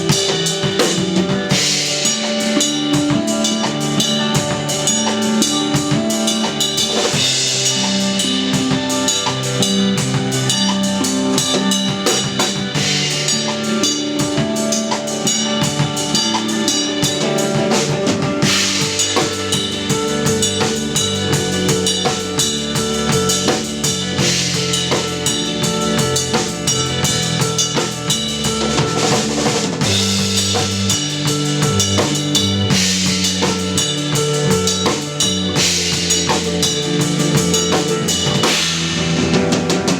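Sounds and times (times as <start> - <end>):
cymbal crashes: 0.0 - 39.6
post-rock band playing: 0.0 - 39.9.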